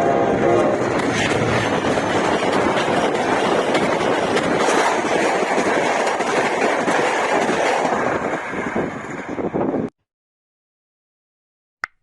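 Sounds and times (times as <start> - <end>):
train wheel and rail noise: 0.0 - 9.9
wheels clacking over rail joints: 0.4 - 9.6.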